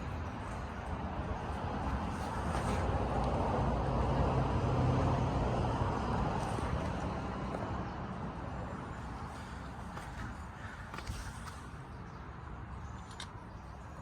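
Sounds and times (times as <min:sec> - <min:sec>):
vehicle passing by: 0:00.2 - 0:08.8.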